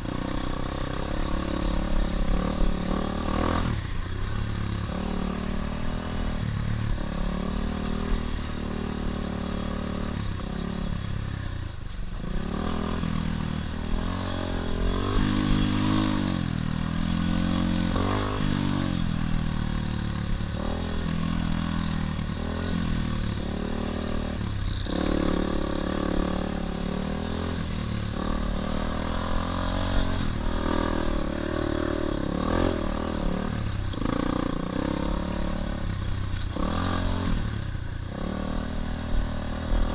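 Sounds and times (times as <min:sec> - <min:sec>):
dirt bike engine revving: 0:00.0 - 0:11.3, 0:12.2 - 0:39.9.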